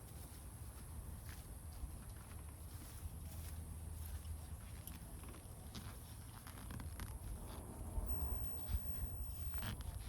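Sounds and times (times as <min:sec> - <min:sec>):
steady low rumble: 0:06.4 - 0:10.0.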